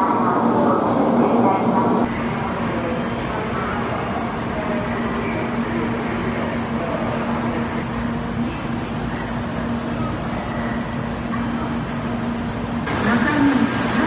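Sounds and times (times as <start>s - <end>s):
station platform din: 12.9s - 14.0s.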